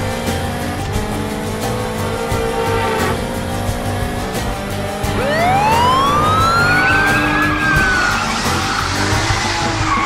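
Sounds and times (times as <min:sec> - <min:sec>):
background music: 0:00.0 - 0:10.0
cartoon vehicle whine: 0:01.8 - 0:03.5, 0:04.4 - 0:10.0.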